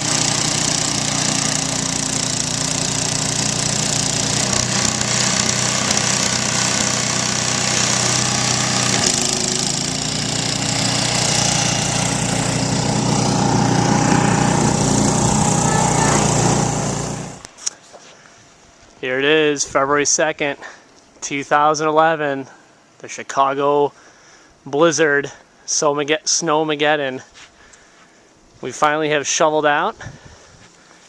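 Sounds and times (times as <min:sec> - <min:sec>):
snowblower engine running: 0:00.0 - 0:17.5.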